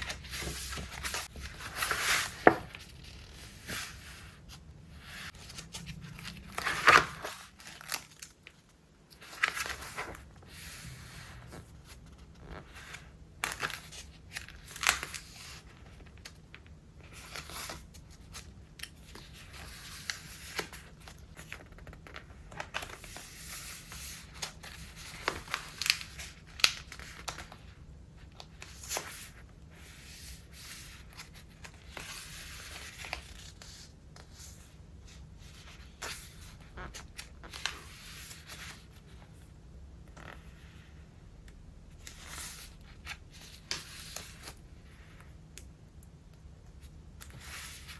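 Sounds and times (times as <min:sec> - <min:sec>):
paper pages turning and rustling: 0:00.0 - 0:27.7.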